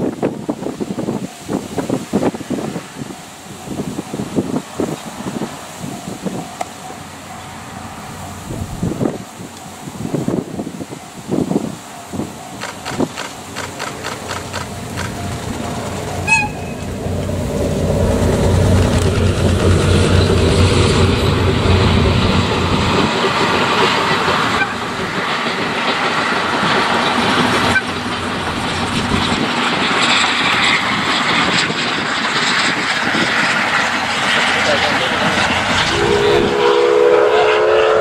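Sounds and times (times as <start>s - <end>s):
train rumbling past: 0.0s - 38.0s
diesel engine drone: 0.3s - 37.4s
train horn toot: 16.2s - 17.0s, 24.5s - 24.9s, 27.7s - 28.0s, 35.7s - 38.0s.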